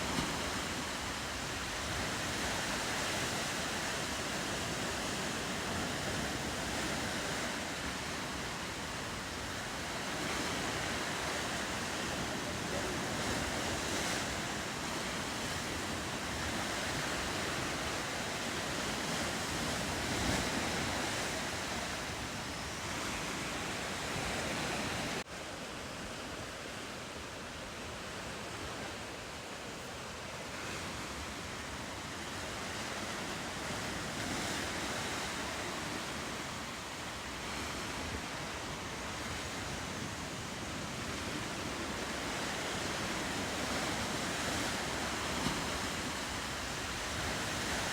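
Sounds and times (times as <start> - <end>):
wind on microphone: 0.0 - 25.2
ocean surf: 0.0 - 47.9.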